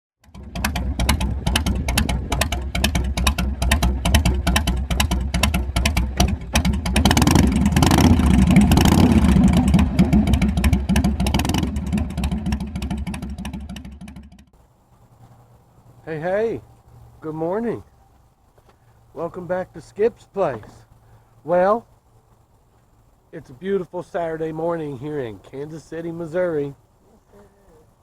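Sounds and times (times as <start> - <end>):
motorcycle engine revving: 0.2 - 14.5.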